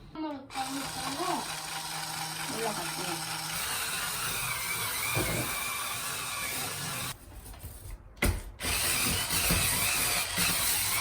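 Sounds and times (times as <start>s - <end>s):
small electric motor whirring: 0.5s - 7.2s.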